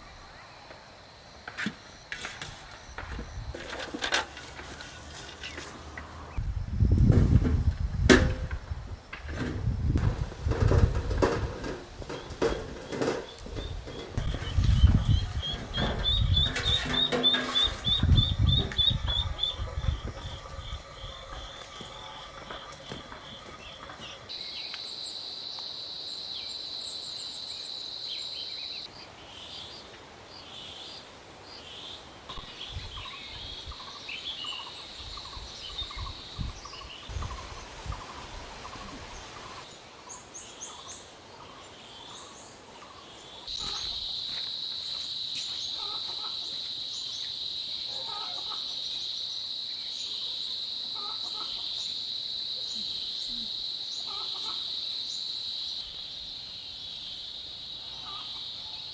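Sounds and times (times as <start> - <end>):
bird and fowl calls: 11.6 - 24.4, 40.7 - 44.3, 45.4 - 49.3, 49.9 - 52.1, 52.7 - 55.3, 57.8 - 58.9
insect buzz: 43.1 - 58.9.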